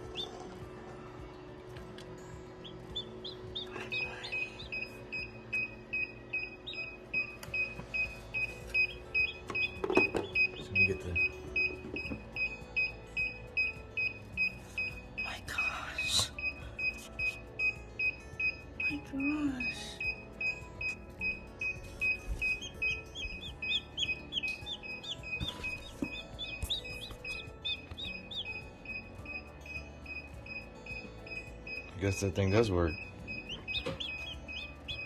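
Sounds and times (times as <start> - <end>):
chick peeping: 2.6 - 6.9, 22.0 - 28.6, 32.9 - 35.0
electronic beeper beeping: 3.8 - 15.0, 16.3 - 35.0.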